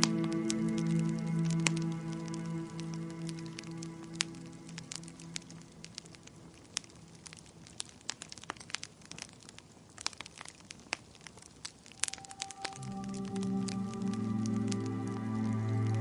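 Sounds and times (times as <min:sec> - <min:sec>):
soft music: 0:00.0 - 0:06.6, 0:11.9 - 0:16.0
wood fire crackling: 0:00.0 - 0:16.0.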